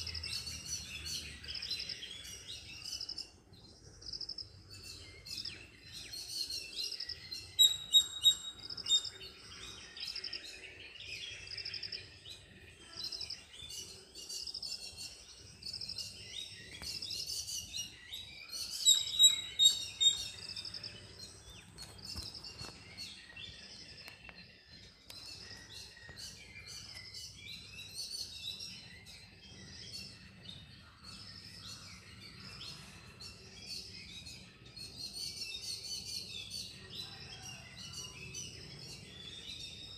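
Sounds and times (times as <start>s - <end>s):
small birds chirping: 0.0s - 37.2s.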